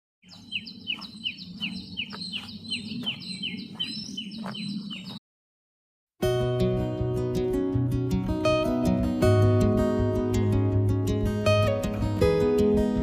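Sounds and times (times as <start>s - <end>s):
birds chirping: 0.2s - 5.2s
guitar music: 6.2s - 13.0s.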